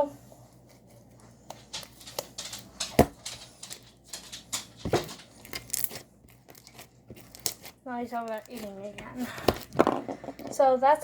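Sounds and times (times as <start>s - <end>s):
dog crunching dry food: 1.6s - 8.9s.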